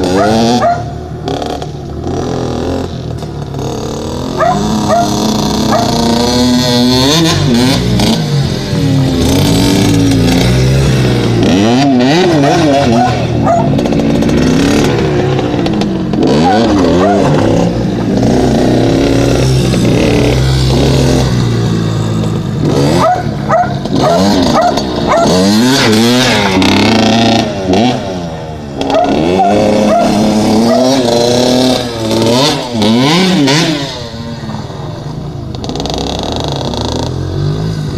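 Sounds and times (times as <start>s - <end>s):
dirt bike engine revving: 0.0s - 37.9s.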